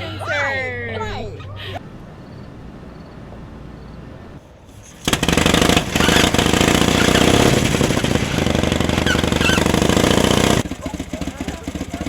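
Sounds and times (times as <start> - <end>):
motorcycle engine running: 4.9 - 12.0.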